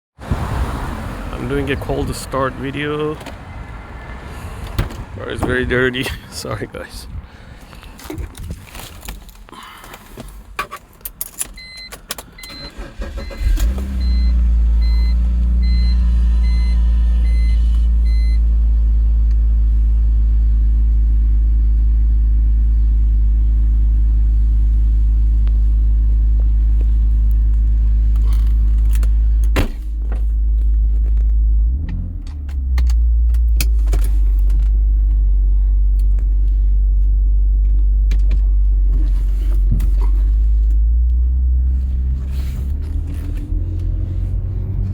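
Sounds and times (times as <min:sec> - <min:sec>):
car engine cranking and idling: 0:00.1 - 0:44.9
keys rattling: 0:07.6 - 0:12.4
car warning chime beeps: 0:11.6 - 0:18.4.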